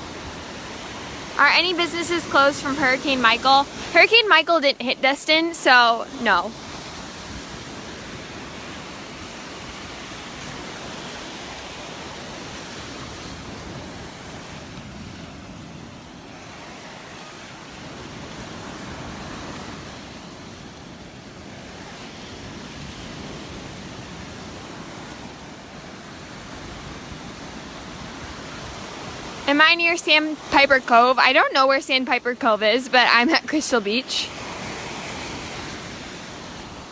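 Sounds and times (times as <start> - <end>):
surf breaking on a beach: 0.0 - 36.9.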